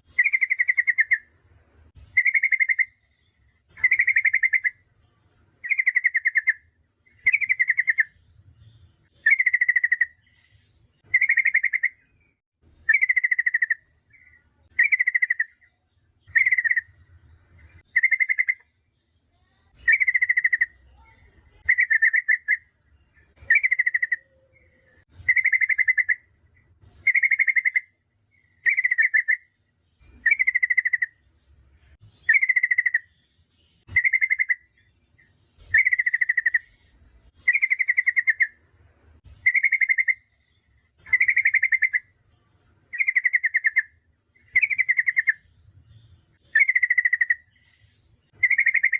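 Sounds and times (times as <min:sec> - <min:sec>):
bird trill call: 0:00.0 - 0:01.3, 0:02.0 - 0:03.0, 0:03.6 - 0:04.9, 0:05.6 - 0:08.2, 0:09.2 - 0:12.1, 0:12.8 - 0:18.7, 0:23.3 - 0:26.4, 0:27.0 - 0:31.2, 0:32.2 - 0:33.2, 0:33.8 - 0:38.6, 0:39.3 - 0:42.2, 0:42.9 - 0:45.5, 0:46.4 - 0:48.9.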